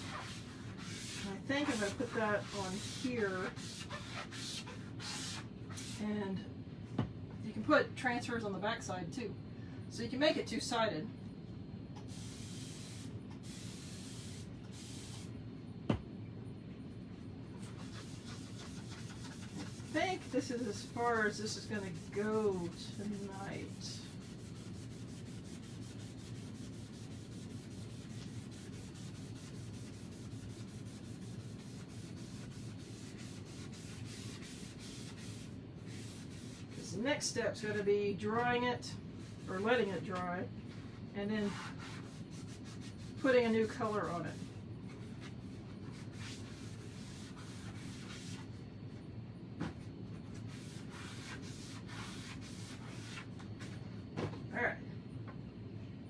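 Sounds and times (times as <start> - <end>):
hand rubbing a surface: 0.0 - 6.0, 17.6 - 36.8, 50.3 - 53.8
hand rubbing across a board: 0.0 - 6.0
steady low hum: 0.0 - 56.0.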